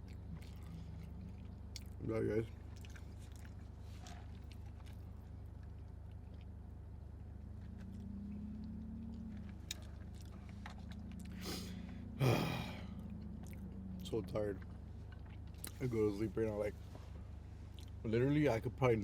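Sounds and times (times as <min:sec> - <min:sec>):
person chewing: 0:00.0 - 0:06.7, 0:07.6 - 0:14.0
steady low hum: 0:00.0 - 0:19.0.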